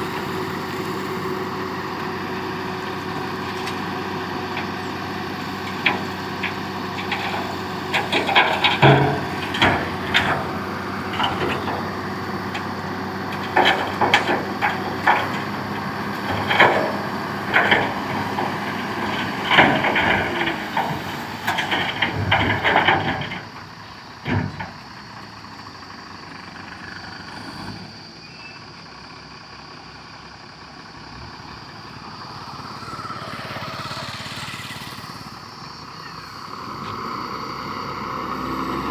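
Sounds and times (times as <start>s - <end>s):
diesel machinery engine: 0.0s - 38.9s
metal knocks and clanks: 5.4s - 12.7s, 13.3s - 23.6s.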